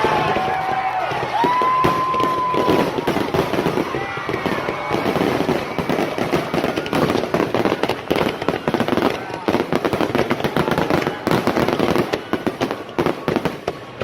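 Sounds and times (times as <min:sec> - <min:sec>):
firework whistle: 0:00.0 - 0:09.7
crowd voices: 0:00.0 - 0:14.0
fireworks popping and crackling: 0:00.0 - 0:14.0.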